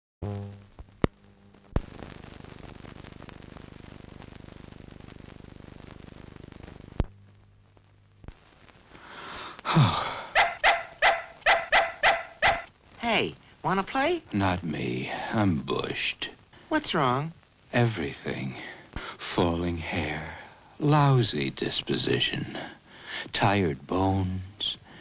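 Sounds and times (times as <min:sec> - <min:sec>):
film soundtrack hiss: 0:00.2 - 0:25.0
cartoon dog yapping: 0:10.4 - 0:12.7.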